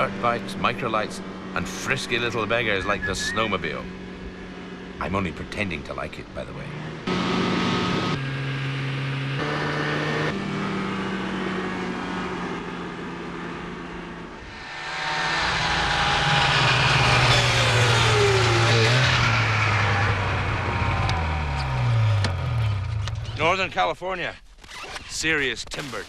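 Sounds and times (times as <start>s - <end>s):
small two-stroke engines revving: 0.0s - 5.6s, 6.5s - 23.3s
machine passing with falling whine: 14.4s - 22.0s.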